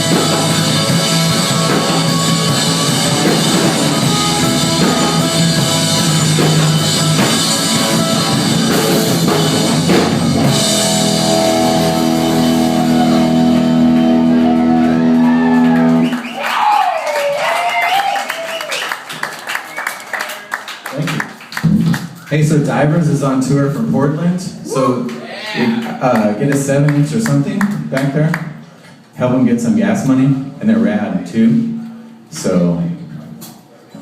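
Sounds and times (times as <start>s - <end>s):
live rock band playing: 0.0s - 16.3s.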